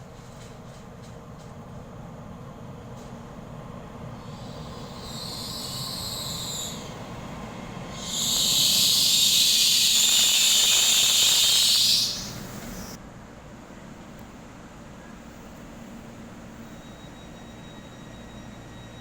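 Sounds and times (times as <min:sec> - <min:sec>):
standing train low rumble: 0:00.0 - 0:19.0
compressed air hissing: 0:04.2 - 0:07.0, 0:07.9 - 0:13.0.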